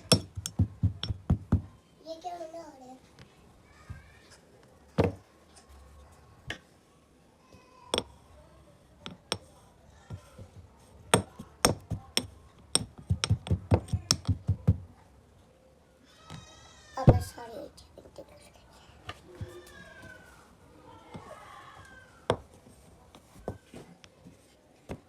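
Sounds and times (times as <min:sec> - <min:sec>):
hard objects knocking: 0:00.0 - 0:01.8, 0:05.0 - 0:05.2, 0:07.9 - 0:08.2, 0:09.0 - 0:09.5, 0:10.1 - 0:14.9, 0:22.2 - 0:22.6.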